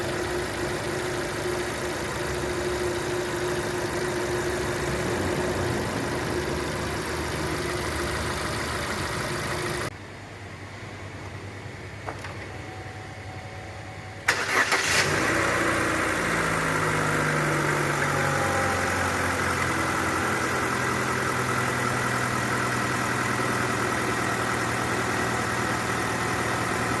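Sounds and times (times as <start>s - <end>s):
car engine starting and idling: 0.0s - 9.9s, 11.0s - 27.0s.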